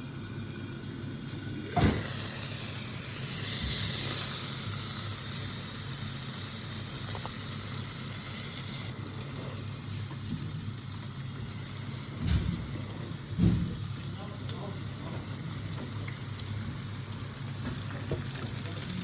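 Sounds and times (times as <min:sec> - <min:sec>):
food sizzling in a pan: 0:00.0 - 0:19.0
thump: 0:01.8 - 0:02.2, 0:13.3 - 0:13.8.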